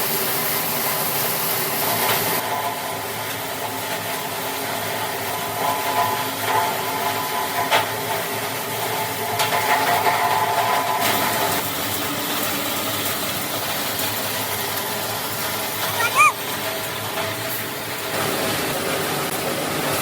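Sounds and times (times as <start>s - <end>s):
short high squeak: 16.0s - 16.4s.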